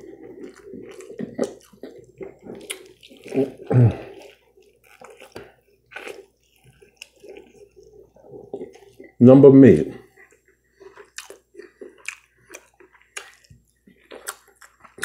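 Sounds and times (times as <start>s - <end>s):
wet chewing and lip smacking: 0.0s - 9.2s, 10.0s - 15.0s.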